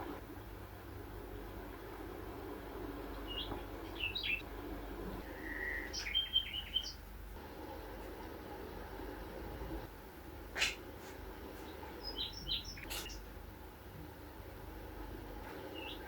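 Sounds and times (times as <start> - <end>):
steady low hum: 0.0 - 16.0
small birds chirping: 2.9 - 4.5, 5.1 - 7.3, 10.6 - 13.5, 15.4 - 16.0.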